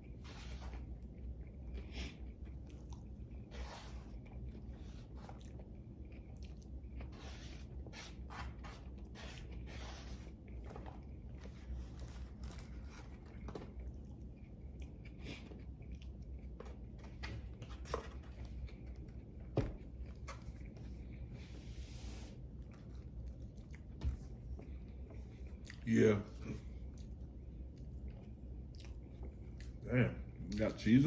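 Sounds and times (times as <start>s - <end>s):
person chewing food: 0.0s - 7.1s, 10.3s - 17.0s, 22.6s - 25.8s, 26.6s - 29.8s.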